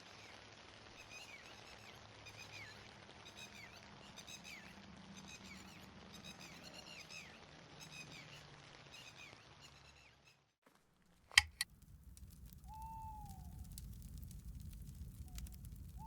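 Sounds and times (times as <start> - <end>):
rain-like hiss: 11.3 - 16.0
sharp clicks: 11.3 - 16.0
high chirping calls: 11.4 - 16.0
falling hoot: 12.2 - 16.0.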